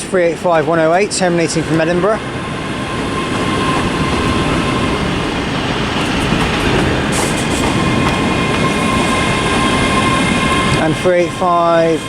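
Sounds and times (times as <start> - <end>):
electric train running: 0.0 - 12.0
thin steady whine: 0.0 - 12.0.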